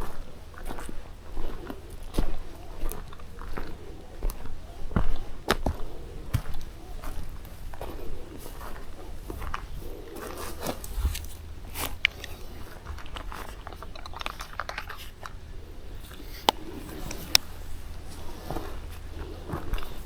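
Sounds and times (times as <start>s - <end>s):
crunching of dry leaves: 0.0s - 20.0s
sharp clicks: 13.0s - 15.4s.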